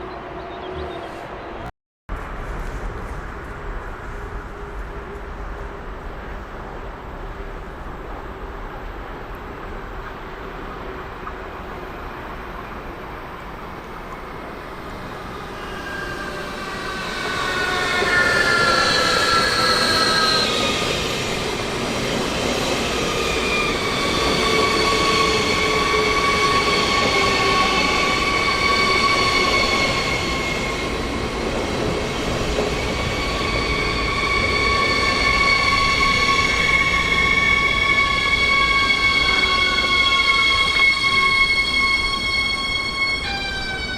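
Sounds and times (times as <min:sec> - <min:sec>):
train rumbling: 0:00.0 - 0:43.9
train wheels squealing: 0:14.6 - 0:43.9.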